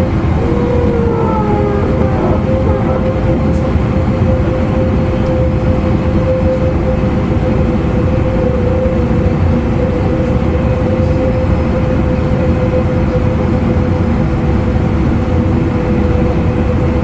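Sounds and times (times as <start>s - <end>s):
traction motor whine: 0.1s - 4.8s.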